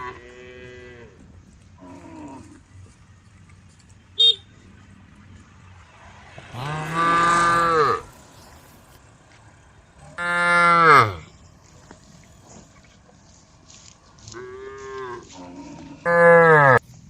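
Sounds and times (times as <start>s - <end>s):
cows mooing: 0.0s - 2.7s, 6.3s - 8.8s, 10.0s - 11.4s, 14.3s - 16.8s.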